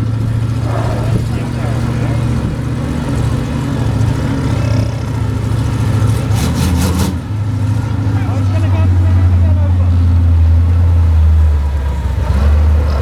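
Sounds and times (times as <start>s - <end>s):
large vehicle engine running: 0.0s - 13.0s
sharp cracks or rattles: 6.0s - 7.2s.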